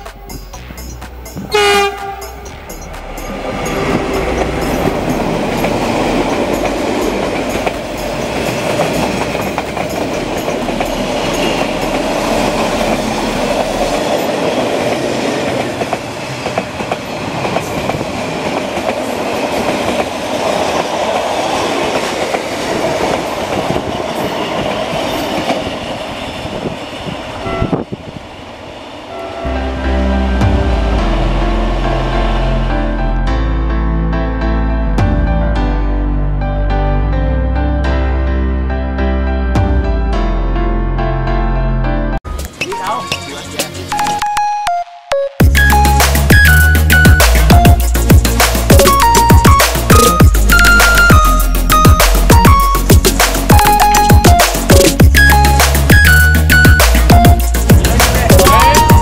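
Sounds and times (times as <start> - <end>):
train wheels clattering on track: 0.0 - 29.0, 46.2 - 59.0
train horn: 1.5 - 2.4, 27.4 - 28.0, 29.1 - 33.1.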